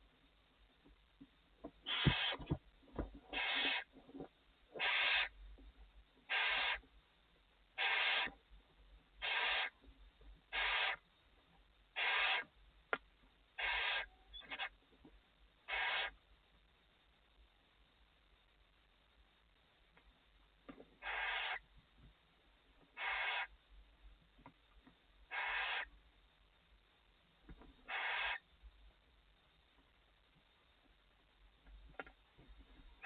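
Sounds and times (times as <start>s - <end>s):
owl hissing: 1.8s - 2.6s, 3.3s - 4.0s, 4.7s - 5.4s, 6.3s - 6.8s, 7.8s - 8.4s, 9.2s - 9.8s, 10.5s - 11.0s, 11.9s - 12.5s, 13.6s - 14.8s, 15.6s - 16.2s, 21.0s - 21.7s, 23.0s - 23.6s, 25.3s - 25.9s, 27.9s - 28.5s.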